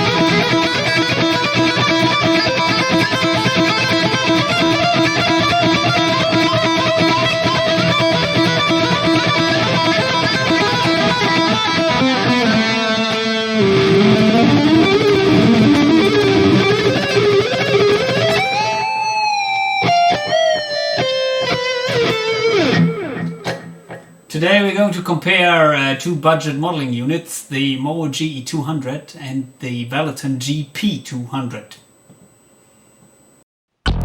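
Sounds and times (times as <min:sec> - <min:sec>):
distorted electric guitar: 0:00.0 - 0:24.3.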